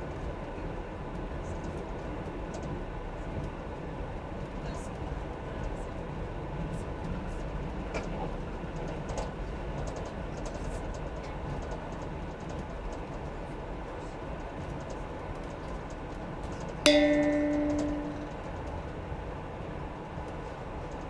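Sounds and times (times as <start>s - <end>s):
train rumbling through tunnel: 0.0s - 21.0s
chime-like tone: 16.9s - 18.4s.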